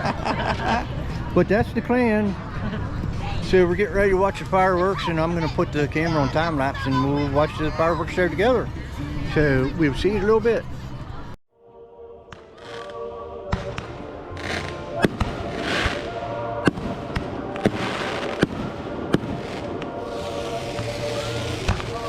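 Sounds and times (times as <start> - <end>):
fireworks bangs: 12.3 - 22.0
fireworks crackling hiss: 13.6 - 22.0.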